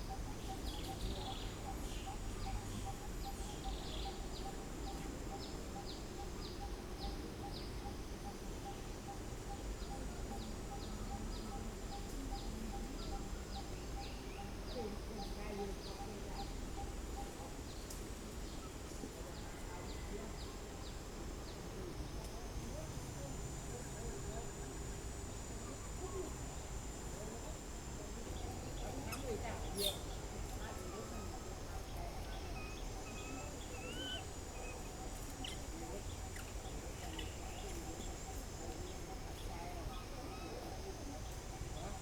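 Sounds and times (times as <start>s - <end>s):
high insect drone: 0.0s - 42.0s
birds chirping: 28.4s - 30.3s, 30.9s - 38.4s
bird chirping: 28.8s - 30.2s.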